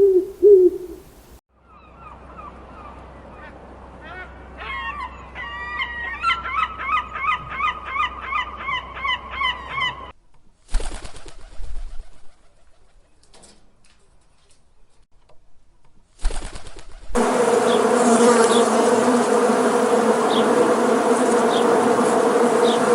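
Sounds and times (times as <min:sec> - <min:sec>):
bird chirping: 0:00.0 - 0:01.1
loud insect buzz: 0:17.2 - 0:22.9.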